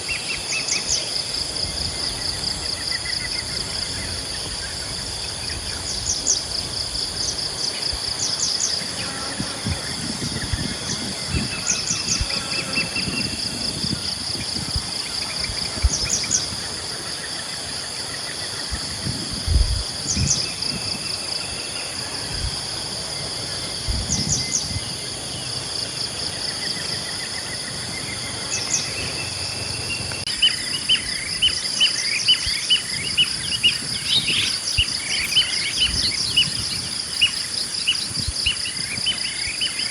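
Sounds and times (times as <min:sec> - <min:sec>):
insects trilling: 0:00.0 - 0:39.9
bird chirps: 0:28.0 - 0:39.9.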